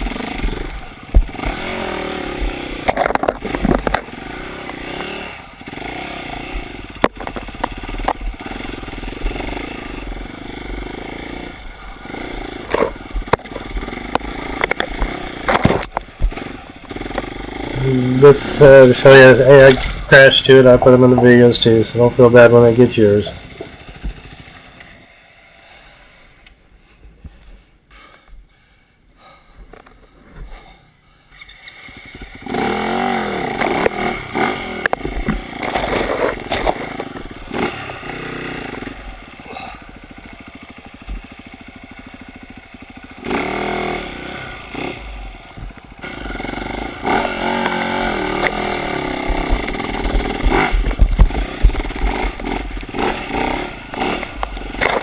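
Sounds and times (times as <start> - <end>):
dirt bike engine revving: 0.0 - 26.4, 31.3 - 55.0
clattering and scraping: 12.6 - 16.4, 34.8 - 37.3.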